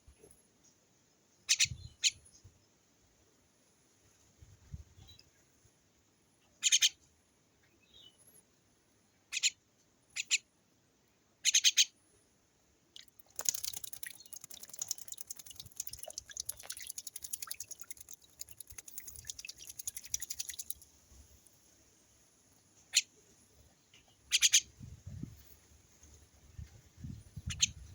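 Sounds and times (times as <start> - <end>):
small bird chirping: 1.4 - 2.5, 6.6 - 7.0, 9.3 - 10.5, 11.4 - 12.0, 13.0 - 21.6, 22.5 - 27.9
bird splashing in water: 13.0 - 21.4.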